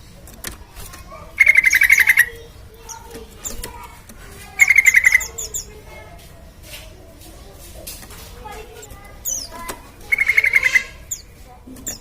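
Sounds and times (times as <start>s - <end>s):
soft bird chirps: 0.9s - 3.8s, 4.4s - 6.2s, 8.4s - 12.0s
bulbul singing: 1.2s - 6.1s, 8.4s - 12.0s.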